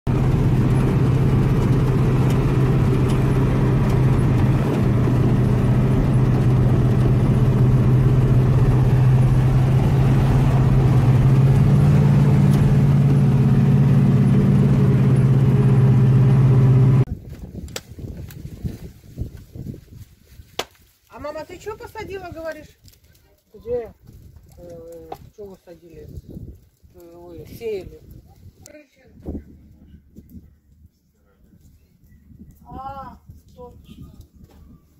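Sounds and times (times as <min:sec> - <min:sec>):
vehicle engine running: 0:00.1 - 0:17.1.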